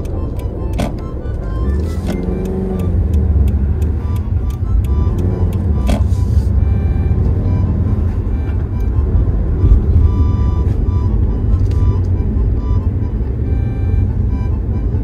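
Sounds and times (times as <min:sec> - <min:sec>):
background music with even beat: 0:00.0 - 0:13.1
car cabin engine and tyre drone: 0:00.0 - 0:15.0.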